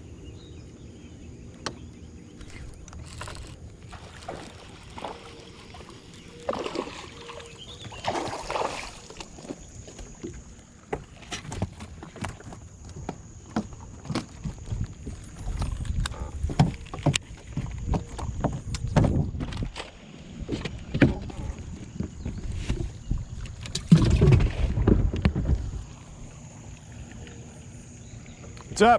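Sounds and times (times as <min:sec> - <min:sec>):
knocks and clicks on boat: 0:07.6 - 0:27.4.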